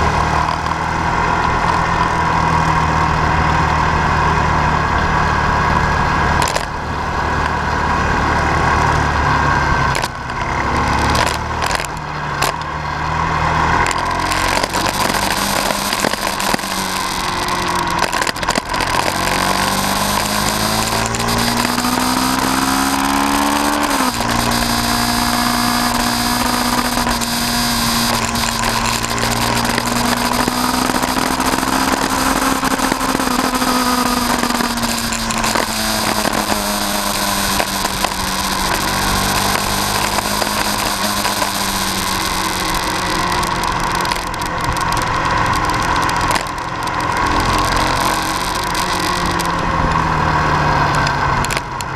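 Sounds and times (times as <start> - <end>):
vehicle engine accelerating: 0.0 - 51.9.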